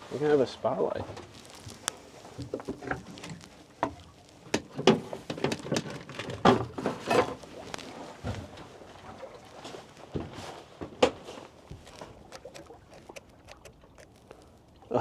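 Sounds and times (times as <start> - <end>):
gear clattering in a boat: 2.4 - 9.4.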